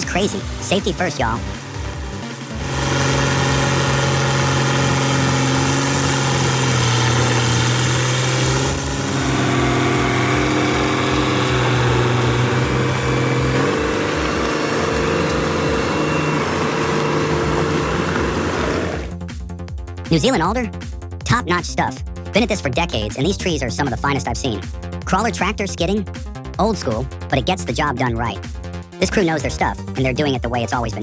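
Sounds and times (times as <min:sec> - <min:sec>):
heavy machine engine droning: 0:00.0 - 0:19.2.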